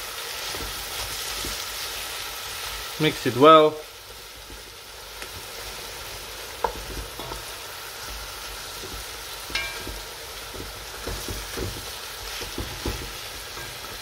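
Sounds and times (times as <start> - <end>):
meat sizzling in a pot: 0.0 - 14.0
wooden spatula scraping a pot: 4.2 - 14.0.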